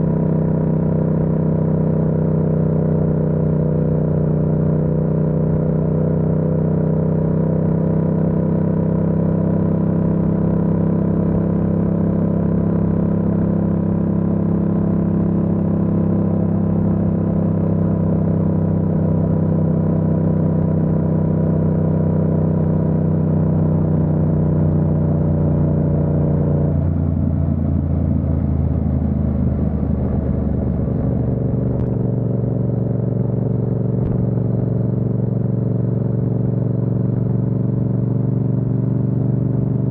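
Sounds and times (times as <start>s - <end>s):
motorcycle engine cruising: 12.7s - 39.9s.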